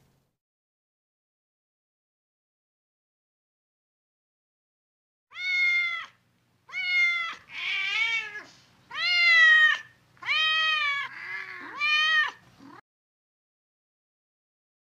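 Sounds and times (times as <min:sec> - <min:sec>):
cat meowing: 0:05.3 - 0:12.8.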